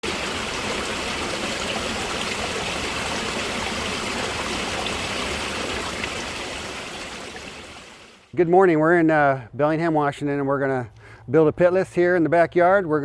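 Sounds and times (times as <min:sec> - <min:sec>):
water running down rock waterfall: 0:00.0 - 0:08.2.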